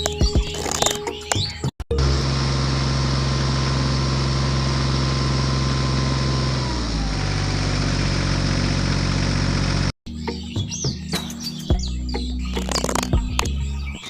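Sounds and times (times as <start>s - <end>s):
engine idling: 1.9s - 9.9s.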